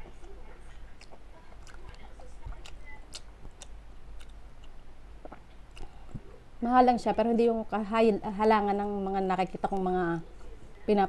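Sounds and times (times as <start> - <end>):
person chewing food: 0.0 - 6.4.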